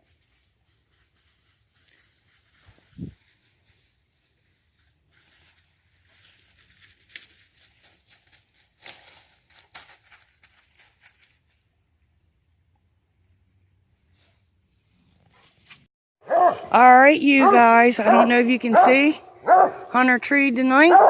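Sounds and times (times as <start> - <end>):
dry leaves crackling underfoot: 0.0 - 11.7.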